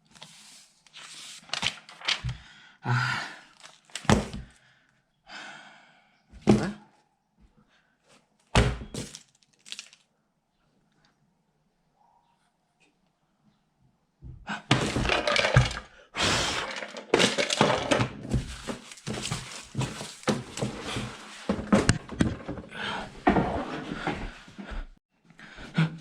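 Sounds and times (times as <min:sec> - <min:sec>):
scraping and rattling: 0:14.7 - 0:22.7.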